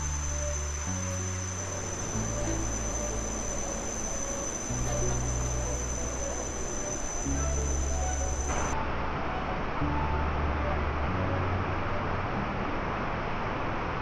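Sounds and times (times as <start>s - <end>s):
insect chorus drone: 0.0s - 8.8s.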